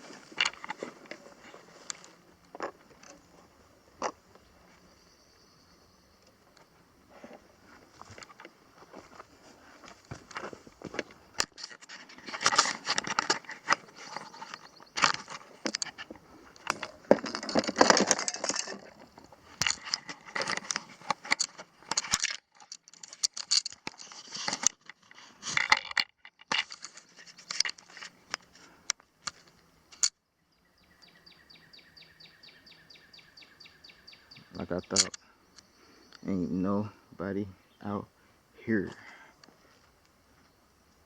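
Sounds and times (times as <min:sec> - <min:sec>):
gear clinking and rustling: 0:07.9 - 0:28.7.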